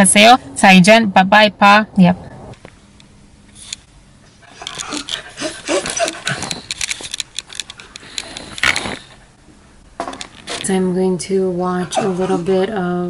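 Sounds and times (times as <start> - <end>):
dog panting: 4.4 - 6.7
dog whimpering: 4.4 - 6.7.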